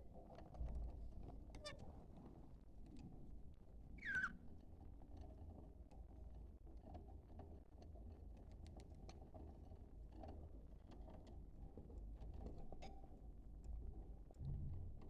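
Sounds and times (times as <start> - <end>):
low steady hum: 14.3 - 15.0.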